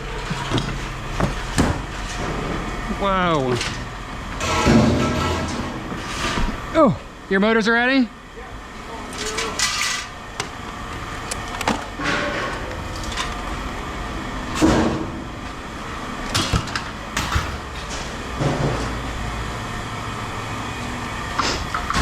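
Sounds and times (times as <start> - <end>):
scrap metal clanking: 4.4 - 6.4, 17.2 - 19.0.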